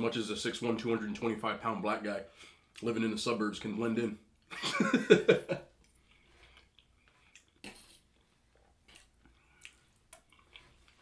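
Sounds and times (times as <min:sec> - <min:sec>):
faint chewing with wet mouth smacks: 0:05.8 - 0:11.0.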